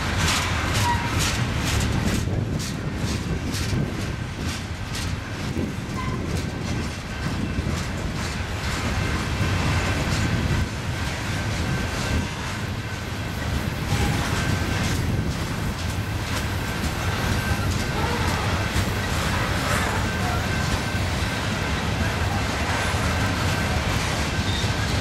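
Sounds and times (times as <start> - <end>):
train wheels clicking over rail joints: 0.0 - 25.0
faint wheel squeal: 24.3 - 24.9.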